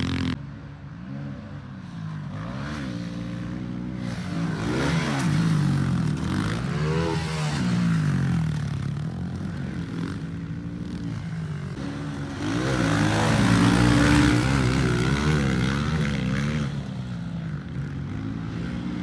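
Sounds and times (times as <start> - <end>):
pit bike engine revving: 4.0 - 10.4, 11.0 - 17.2.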